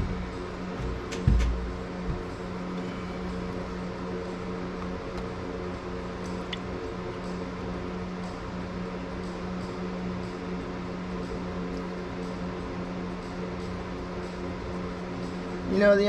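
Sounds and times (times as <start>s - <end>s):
machine hum: 0.0s - 16.0s
dull thump: 0.8s - 2.3s.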